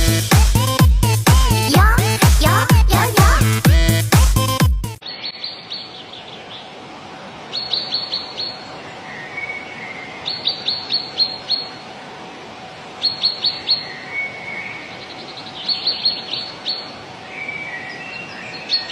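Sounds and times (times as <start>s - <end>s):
soft low warbling bird call: 5.0s - 12.0s, 13.0s - 18.9s
songbird singing high notes: 7.5s - 11.9s, 13.0s - 18.9s.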